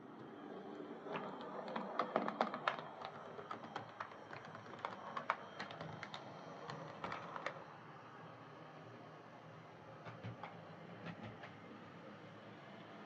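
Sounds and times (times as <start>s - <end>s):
model train clicking on track: 1.1s - 7.6s, 10.0s - 11.7s.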